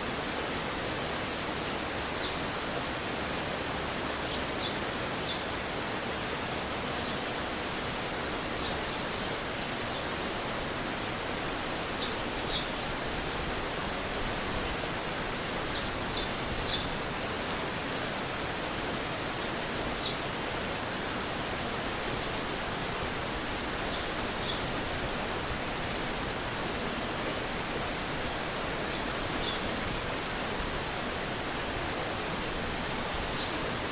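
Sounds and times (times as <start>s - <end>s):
stream flowing: 0.0s - 33.9s.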